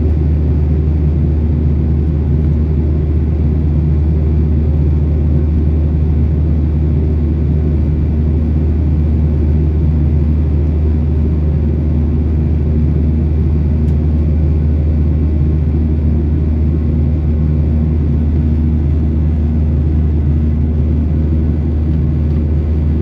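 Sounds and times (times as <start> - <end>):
airplane cabin drone: 0.0 - 23.0.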